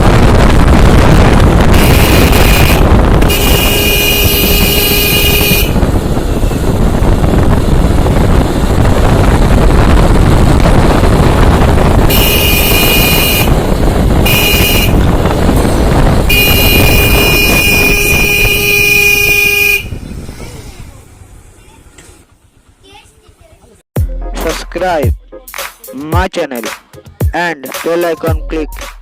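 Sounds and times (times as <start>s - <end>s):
wind rumble on microphone: 0.0s - 21.4s
motorcycle riding: 0.0s - 23.8s
vehicle horn toots: 1.7s - 6.0s, 12.0s - 13.6s, 14.2s - 15.2s, 16.2s - 20.0s.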